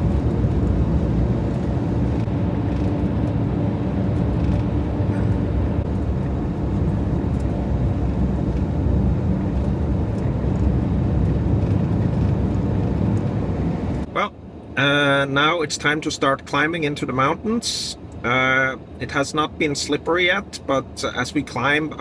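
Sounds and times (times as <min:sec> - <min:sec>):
van engine and road noise: 0:00.0 - 0:22.0.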